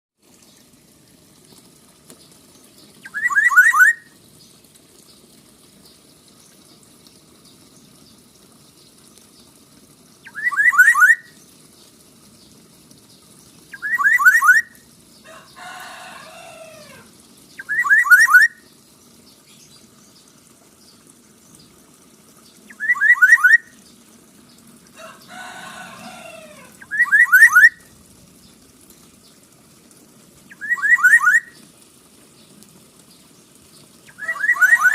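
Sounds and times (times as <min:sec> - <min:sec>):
bird calling in quick phrases: 0:03.0 - 0:04.1, 0:10.2 - 0:11.4, 0:13.7 - 0:14.8, 0:16.6 - 0:18.6, 0:22.7 - 0:23.8, 0:26.0 - 0:27.9, 0:30.5 - 0:31.6, 0:34.1 - 0:34.9
harsh drawn-out bird calls: 0:03.0 - 0:04.2, 0:10.2 - 0:11.5, 0:13.7 - 0:20.2, 0:25.0 - 0:27.9, 0:30.5 - 0:31.7, 0:33.8 - 0:34.9.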